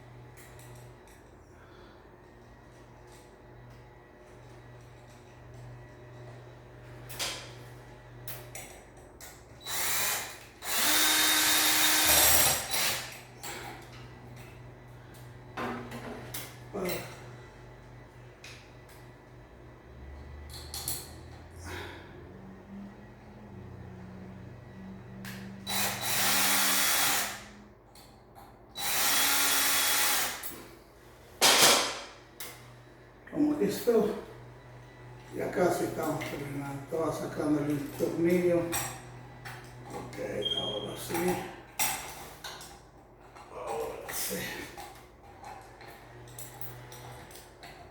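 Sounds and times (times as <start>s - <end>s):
power drill running: 9.6s - 13.2s, 25.6s - 27.5s, 28.8s - 30.4s.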